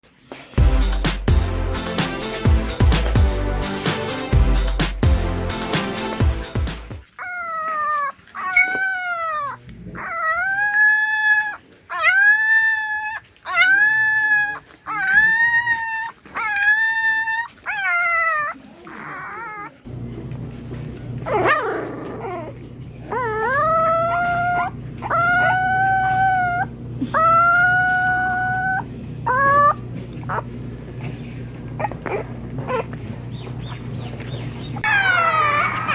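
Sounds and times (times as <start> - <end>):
dog howling: 7.0 - 19.9, 21.2 - 30.6, 31.7 - 35.9.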